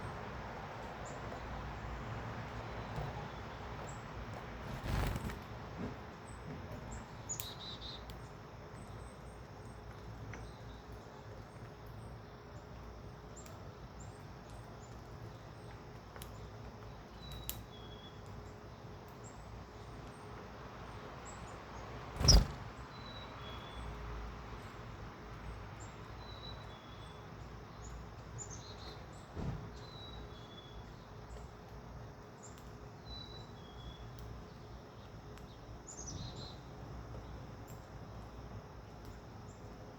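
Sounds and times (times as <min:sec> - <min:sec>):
birds chirping: 0:22.2 - 0:23.1.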